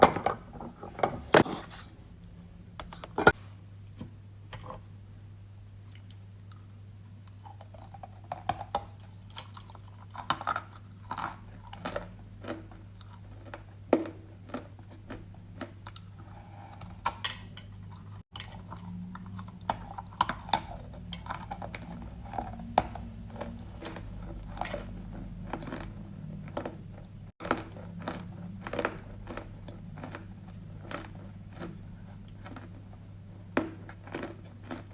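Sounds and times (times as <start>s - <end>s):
low steady hum: 0.0s - 34.9s
clay crunching while chewed: 17.9s - 34.9s.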